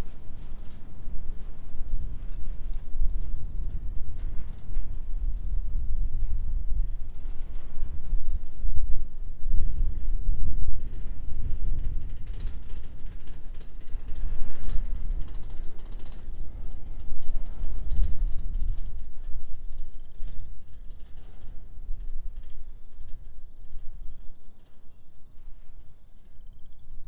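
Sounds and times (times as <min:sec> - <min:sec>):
freight train rumble: 0:00.0 - 0:27.0
train wheels clicking and creaking: 0:10.8 - 0:26.6.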